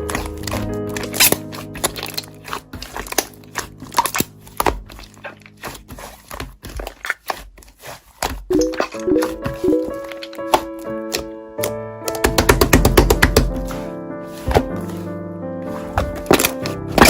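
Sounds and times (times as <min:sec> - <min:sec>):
slime squished by hand: 0:00.0 - 0:11.2.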